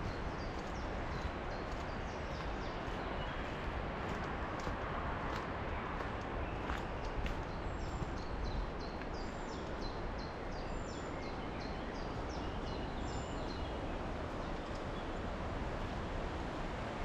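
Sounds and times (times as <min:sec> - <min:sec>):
steady outdoor rush: 0:00.0 - 0:10.6
songbird singing: 0:06.0 - 0:13.8.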